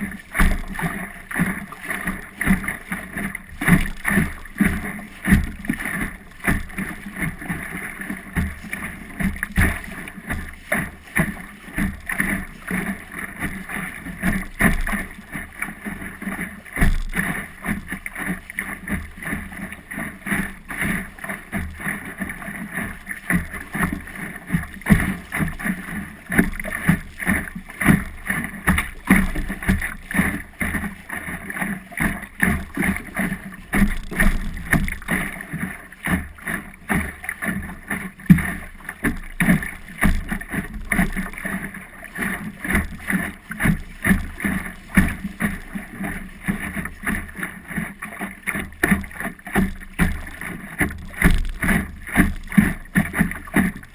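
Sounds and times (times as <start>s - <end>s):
water splashing against boat hull: 0.0s - 53.9s.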